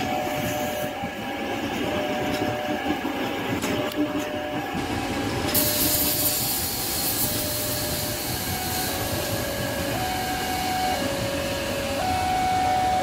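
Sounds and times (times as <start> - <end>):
electric train running past: 0.0 - 13.0
level crossing alarm two tones: 7.4 - 13.0.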